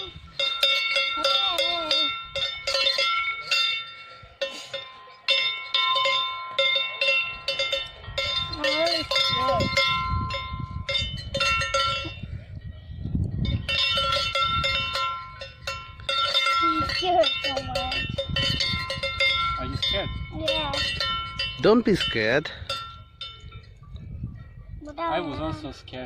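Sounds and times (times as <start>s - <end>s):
wind rumbling on microphone: 0.0s - 0.6s, 7.3s - 26.0s
cowbells clanking: 0.0s - 24.1s.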